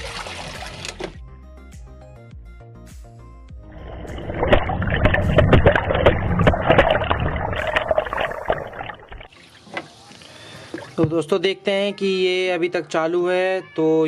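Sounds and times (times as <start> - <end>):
water sloshing in washing machine: 0.0 - 1.2, 3.8 - 9.9.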